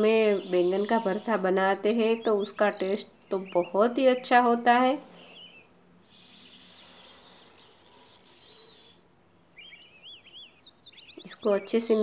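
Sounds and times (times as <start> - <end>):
bird chirping: 0.0 - 12.0
soft high hiss: 4.8 - 11.3.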